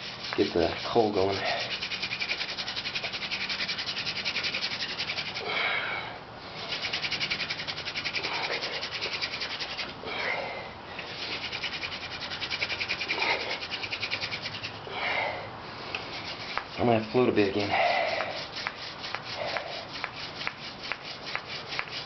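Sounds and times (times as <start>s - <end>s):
wooden spindle rasping in notch: 0.0s - 5.4s, 6.7s - 9.9s, 11.1s - 14.8s, 16.0s - 22.0s
person breathing heavily: 5.4s - 6.7s, 8.2s - 8.9s, 10.0s - 11.2s, 14.8s - 16.0s, 17.6s - 18.5s, 19.3s - 19.9s.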